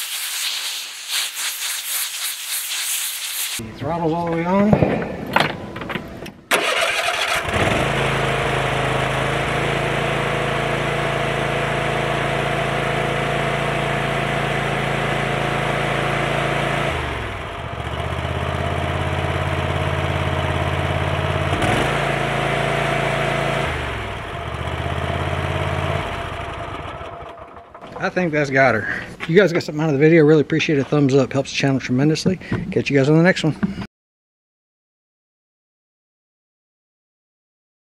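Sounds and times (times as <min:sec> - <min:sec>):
riding mower engine running: 0:06.5 - 0:28.9.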